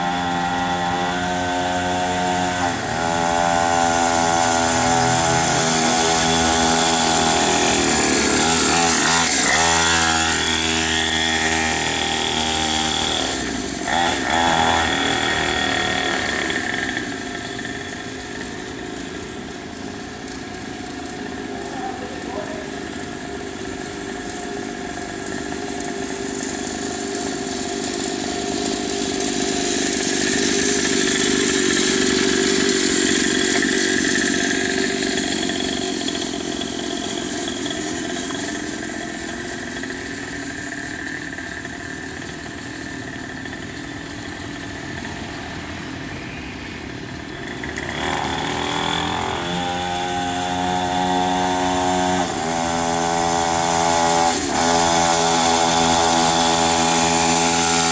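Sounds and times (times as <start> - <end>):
mini motocross bike engine: 0.0 - 57.9.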